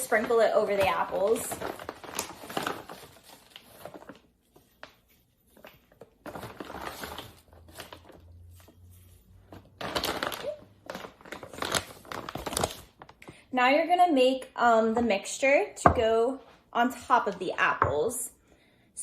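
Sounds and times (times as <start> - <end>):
rustling and crinkling: 0.0 - 13.3.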